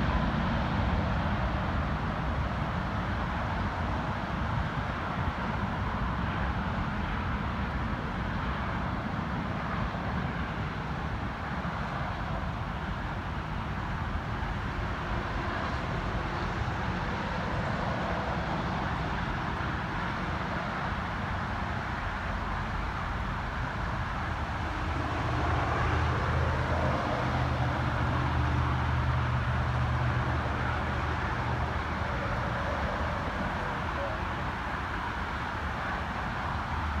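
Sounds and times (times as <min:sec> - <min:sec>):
distant jet engines rushing: 0:22.4 - 0:37.0.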